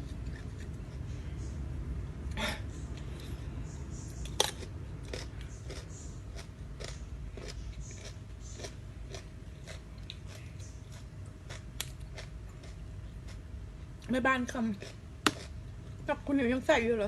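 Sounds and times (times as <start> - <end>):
person chewing crunchy food: 0.0 - 1.1, 4.2 - 14.0, 14.8 - 16.0.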